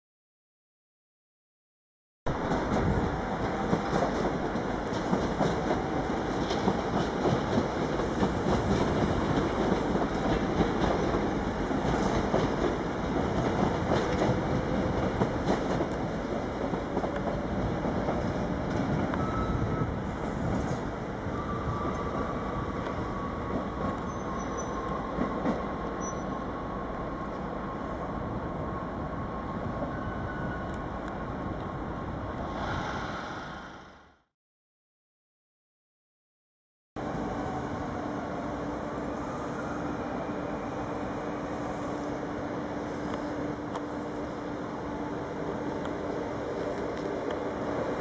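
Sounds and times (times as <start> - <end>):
wheel squeal: 24.0 - 24.9, 26.0 - 26.4.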